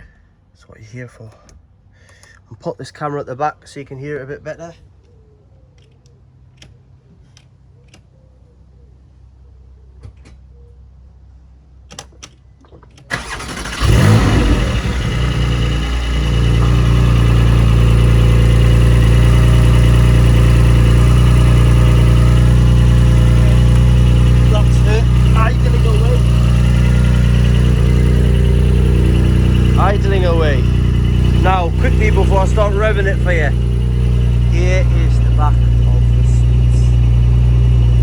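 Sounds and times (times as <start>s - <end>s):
car engine starting and idling: 13.1s - 38.0s.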